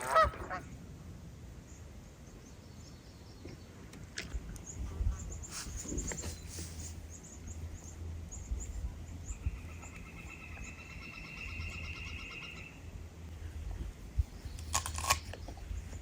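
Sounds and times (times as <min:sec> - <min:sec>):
small birds chirping: 0:04.4 - 0:13.0.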